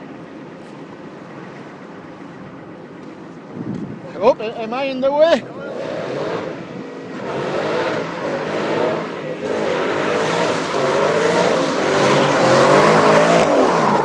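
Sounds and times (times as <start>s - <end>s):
road noise: 0.0s - 14.0s
car engine accelerating: 5.4s - 14.0s.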